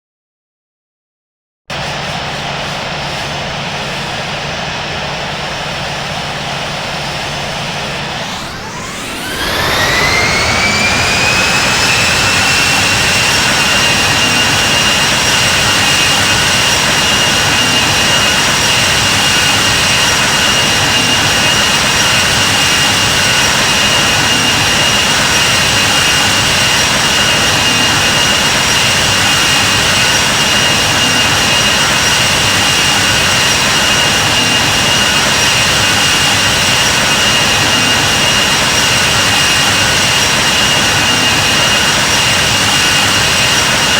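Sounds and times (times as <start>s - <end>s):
jet engines at takeoff thrust: 1.7s - 43.9s.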